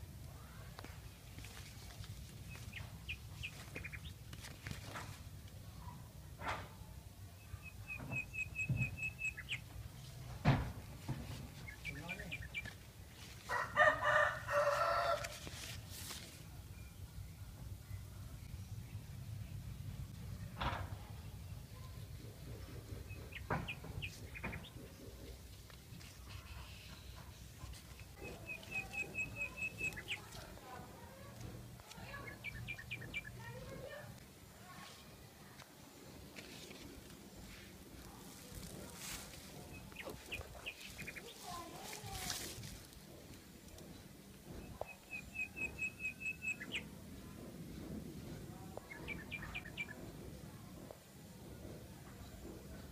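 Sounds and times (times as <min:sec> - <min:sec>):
small bird chirping: 0:07.4 - 0:09.7, 0:28.0 - 0:30.4, 0:44.7 - 0:46.9.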